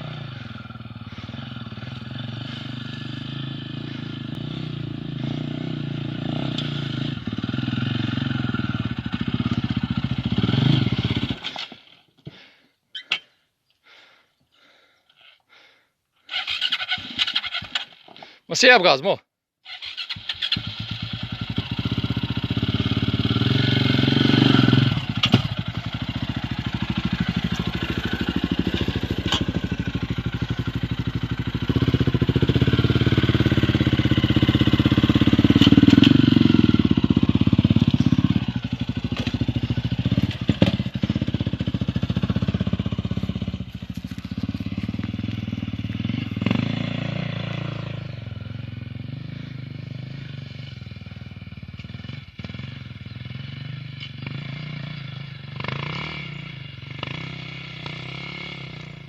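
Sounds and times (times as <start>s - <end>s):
motorcycle engine revving: 0.0s - 11.8s, 19.7s - 59.0s.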